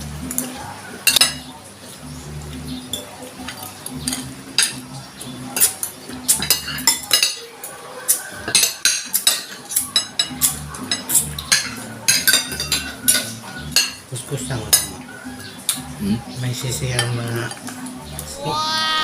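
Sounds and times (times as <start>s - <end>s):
cutlery clinking on plate: 0.4s - 1.5s, 2.9s - 4.8s, 5.5s - 14.0s, 16.9s - 17.8s.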